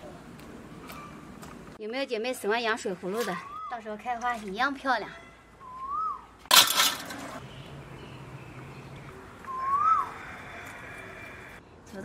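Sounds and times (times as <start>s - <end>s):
bird whistle call: 5.6s - 6.3s, 9.4s - 10.3s.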